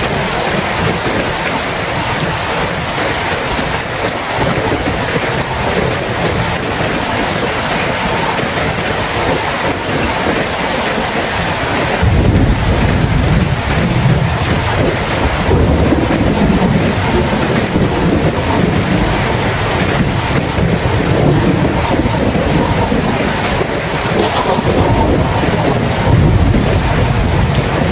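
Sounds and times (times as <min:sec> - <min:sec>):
steady rain: 0:00.0 - 0:27.9
rolling thunder: 0:11.8 - 0:27.9.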